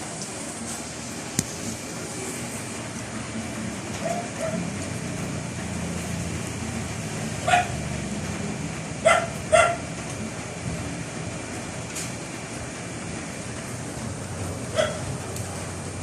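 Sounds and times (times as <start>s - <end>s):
heavy rain: 0.0s - 16.0s
wind: 0.0s - 16.0s
dog barking: 4.0s - 4.7s, 7.4s - 7.8s, 9.0s - 9.9s, 14.7s - 15.1s.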